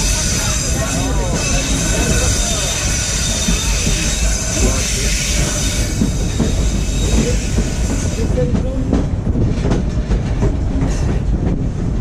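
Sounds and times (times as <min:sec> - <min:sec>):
high wheel squeal: 0:00.0 - 0:08.3
train rumble: 0:00.0 - 0:12.0.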